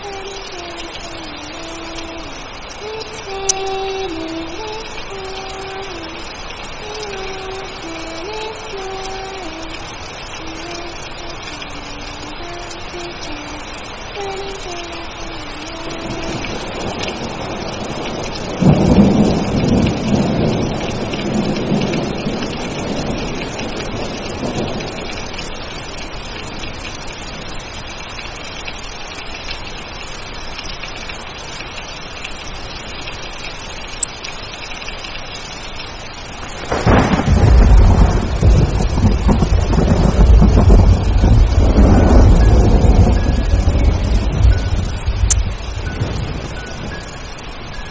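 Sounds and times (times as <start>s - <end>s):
steady rain: 0.0s - 47.9s
thunder rumbling: 15.5s - 27.6s, 36.4s - 47.8s.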